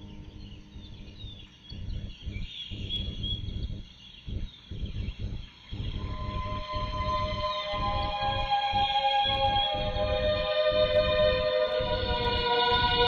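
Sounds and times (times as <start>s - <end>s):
faint bird chirps: 0.0s - 9.9s.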